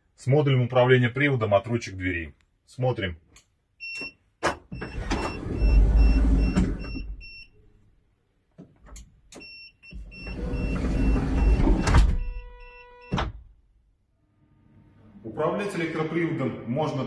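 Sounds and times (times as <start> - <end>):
warning beep: 3.8 - 7.5, 9.4 - 13.2
sliding door motor whir: 4.7 - 7.1, 10.0 - 12.3.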